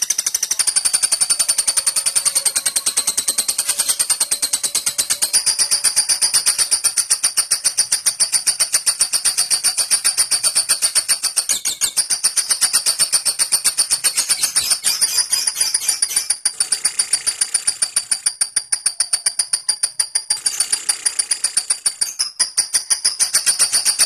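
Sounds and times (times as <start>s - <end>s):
lovebird chattering trill: 0.0s - 17.4s.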